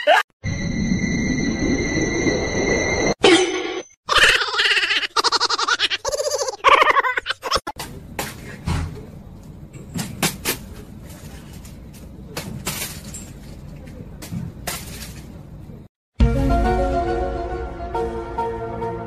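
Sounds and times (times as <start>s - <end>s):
music: 16.2s - 19.0s.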